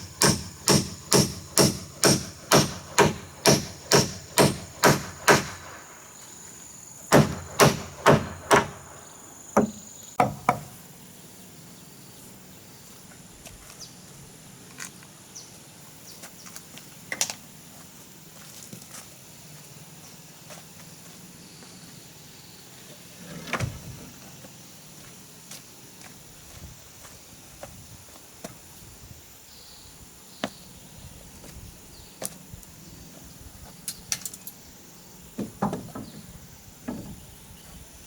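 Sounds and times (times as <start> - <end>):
tool striking wood: 0.0 - 5.8, 7.1 - 10.8, 35.4 - 36.2.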